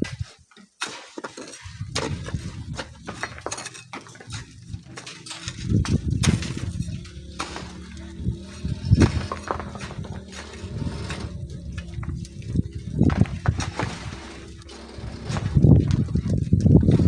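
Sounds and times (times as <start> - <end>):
shovel scraping in sand and gravel: 0.1 - 15.9.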